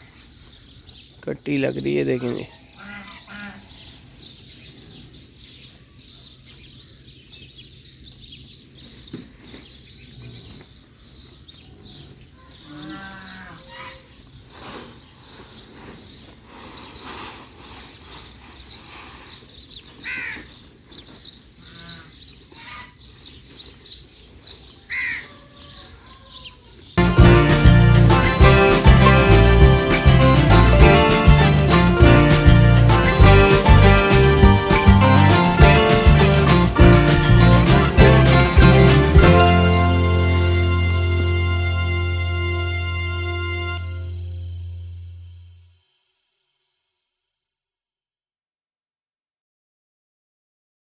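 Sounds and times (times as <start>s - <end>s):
livestock calls: 2.3s - 3.8s, 12.0s - 14.1s
crows cawing: 2.8s - 3.7s, 20.0s - 20.6s, 21.6s - 22.9s, 24.9s - 25.3s
music: 27.0s - 45.8s.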